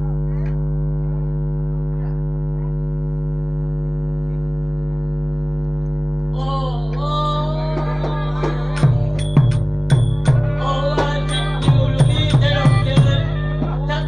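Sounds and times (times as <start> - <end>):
electrical mains hum: 0.0 - 14.0
music with gliding pitches: 7.3 - 14.0.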